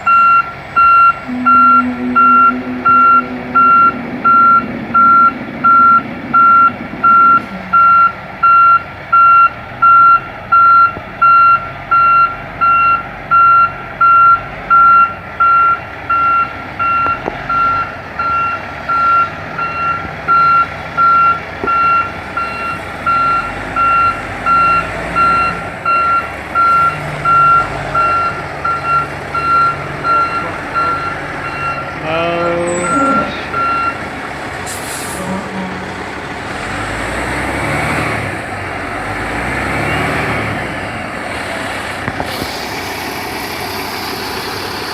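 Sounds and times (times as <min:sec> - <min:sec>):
diesel engine running: 0:00.0 - 0:44.9
truck reversing alarm beeping: 0:00.0 - 0:44.9
short rising sound: 0:01.2 - 0:08.8.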